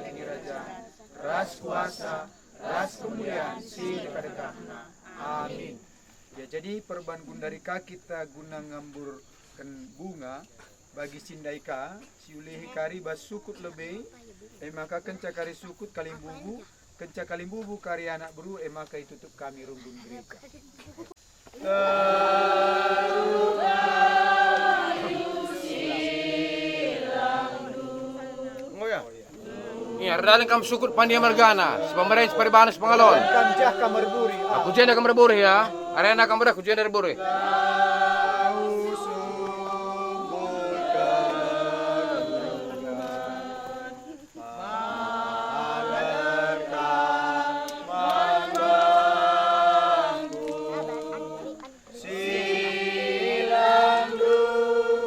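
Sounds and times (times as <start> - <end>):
group singing a hymn: 0.0 - 10.2, 21.4 - 55.0.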